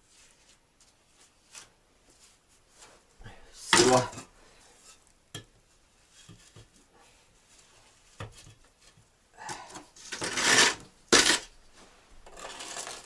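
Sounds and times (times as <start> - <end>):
trowel scraping brick: 10.0 - 11.5, 12.3 - 13.0.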